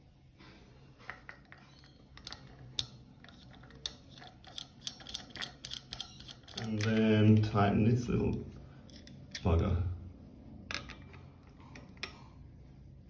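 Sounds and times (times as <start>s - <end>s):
small metallic clicks: 1.3s - 7.1s.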